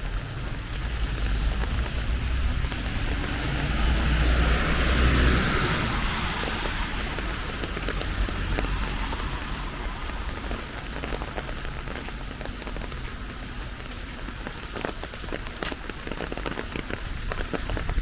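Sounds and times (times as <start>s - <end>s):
low rumble: 0.0s - 14.0s
raindrops tapping close by: 0.0s - 18.0s
steady rain falling: 0.0s - 18.0s.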